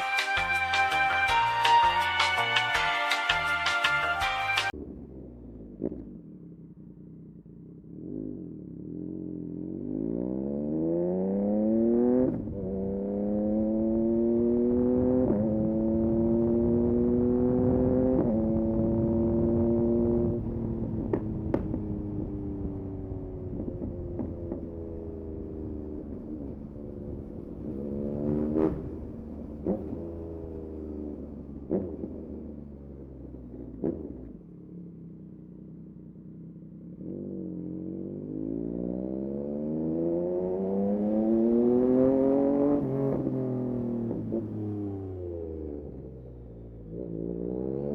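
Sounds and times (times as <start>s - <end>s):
motorcycle engine accelerating: 0.0s - 47.9s
exhaust pops: 4.7s - 7.0s, 19.4s - 34.7s.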